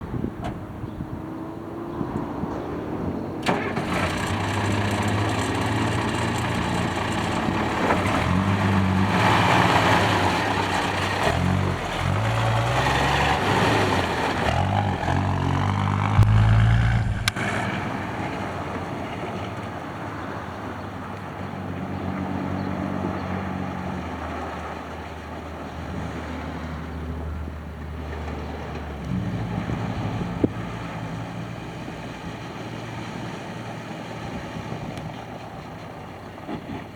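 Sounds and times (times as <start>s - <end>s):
truck engine revving: 3.4s - 20.3s
truck engine idling: 3.4s - 20.9s.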